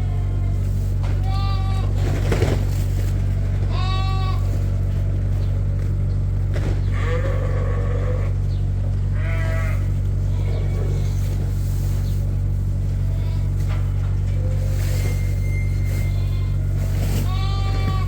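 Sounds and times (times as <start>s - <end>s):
sheep bleating: 0.0s - 2.0s, 3.6s - 4.7s, 6.9s - 11.2s, 13.0s - 13.7s, 16.0s - 18.0s
steady low hum: 0.0s - 18.0s.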